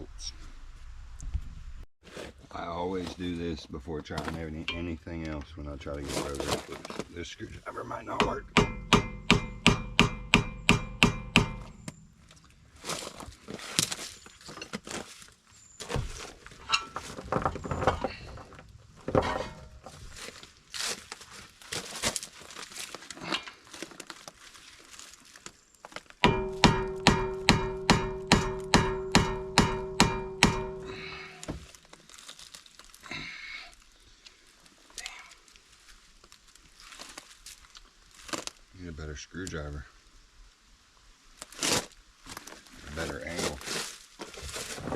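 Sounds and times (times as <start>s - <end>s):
hammer striking screwdriver: 8.2s - 11.9s.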